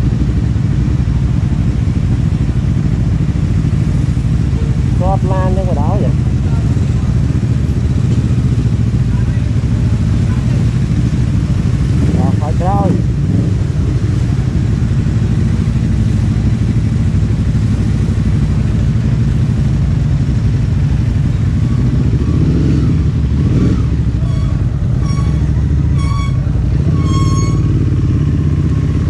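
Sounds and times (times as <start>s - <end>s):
motorcycle engine at low revs: 0.0s - 29.0s
short horn beeps: 24.2s - 27.8s.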